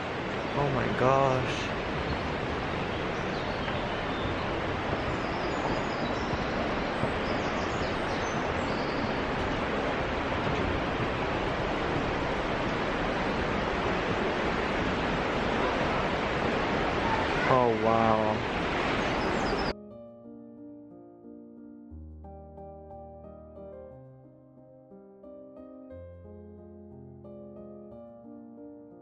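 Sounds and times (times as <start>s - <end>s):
river water rushing: 0.0s - 19.7s.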